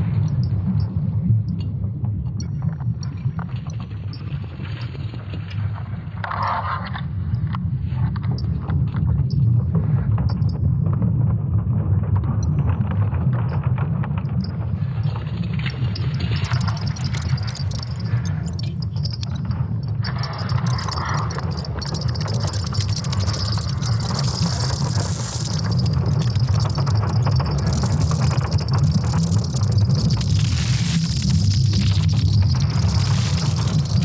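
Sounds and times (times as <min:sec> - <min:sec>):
crackles and creaks: 0:01.6 - 0:34.0
deep rumble: 0:13.7 - 0:34.0.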